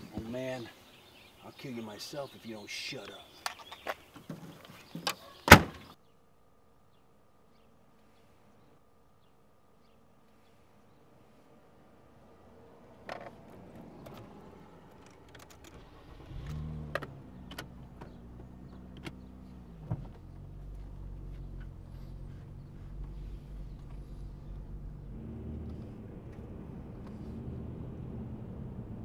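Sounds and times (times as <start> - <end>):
car engine starting and running: 12.2 - 29.0
clicks and rattles inside car: 13.1 - 27.2.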